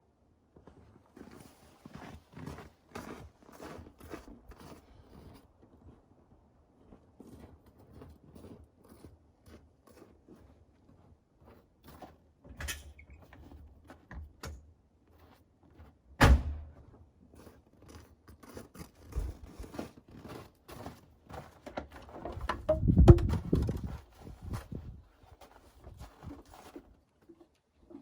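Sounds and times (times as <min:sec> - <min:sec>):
loud thunk: 0:16.2 - 0:16.7
handling clicks and knocks: 0:21.8 - 0:24.0.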